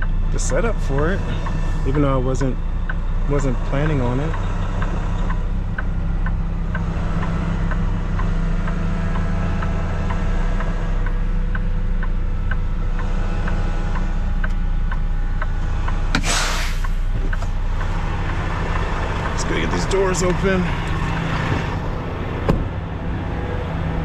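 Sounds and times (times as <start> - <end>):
light ticking: 0.0 - 16.1, 16.8 - 21.3
truck diesel engine idling: 0.0 - 24.0
air brake hiss: 16.2 - 17.1.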